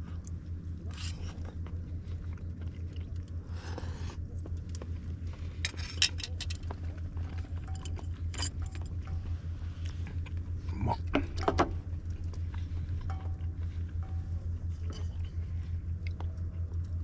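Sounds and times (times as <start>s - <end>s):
engine humming: 0.0s - 17.0s
metallic clinks and scrapes: 5.6s - 6.7s, 7.3s - 9.2s.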